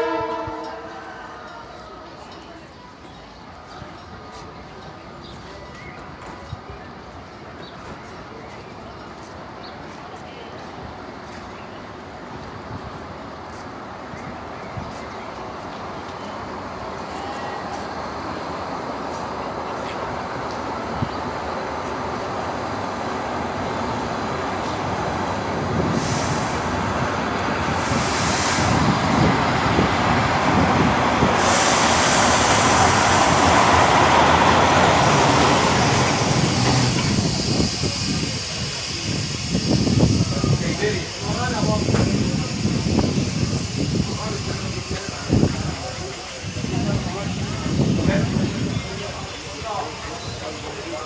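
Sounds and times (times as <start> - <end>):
train rumble and rail noise: 0.0 - 51.0
high hiss: 22.3 - 51.0.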